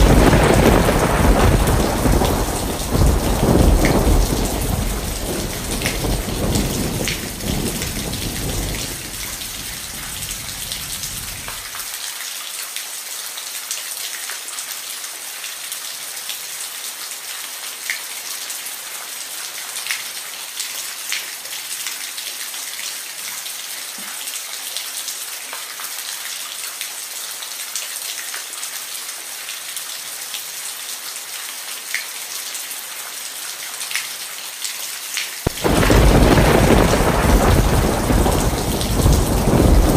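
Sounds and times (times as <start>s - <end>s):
low thunder roll: 0.0s - 11.6s, 35.5s - 39.9s
raindrops ticking: 0.0s - 11.8s, 35.5s - 39.9s
rain hissing: 0.0s - 12.0s, 35.4s - 39.9s.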